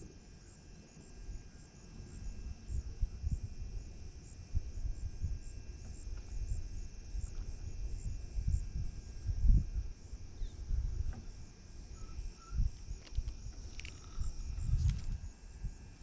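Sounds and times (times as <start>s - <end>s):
insects chirping: 0.0s - 16.0s
wind buffeting on microphone: 2.0s - 16.0s.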